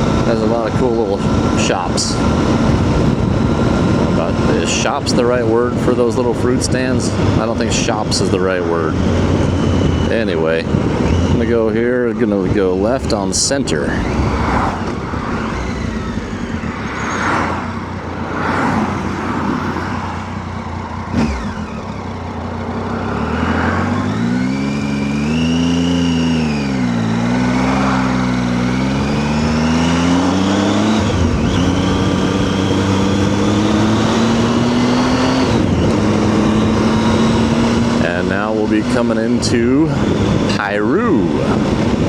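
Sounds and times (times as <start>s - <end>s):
motorcycle engine accelerating: 0.0s - 42.0s
wind and road noise: 0.0s - 42.0s.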